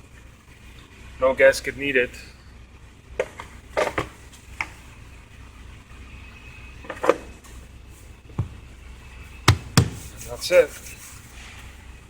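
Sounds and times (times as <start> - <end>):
low steady hum: 0.0 - 12.0
parts knocking and clicking: 9.5 - 10.2.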